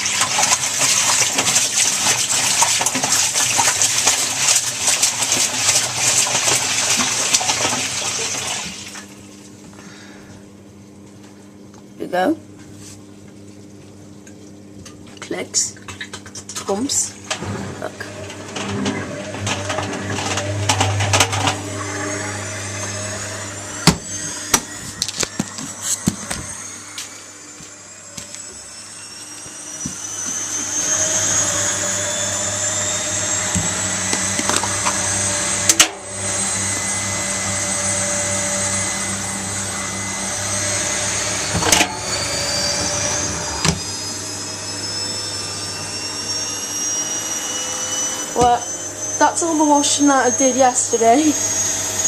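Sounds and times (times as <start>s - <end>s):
washing machine spin whine: 0.0s - 52.0s.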